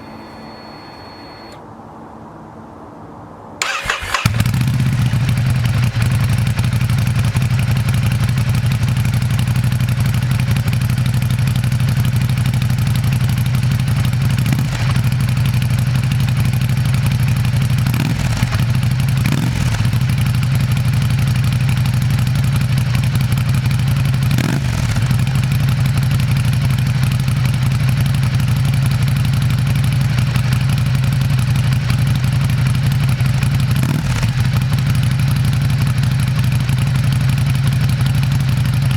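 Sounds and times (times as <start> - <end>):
throttle blips: 0.0 - 1.6
motorcycle engine idling: 3.6 - 38.9.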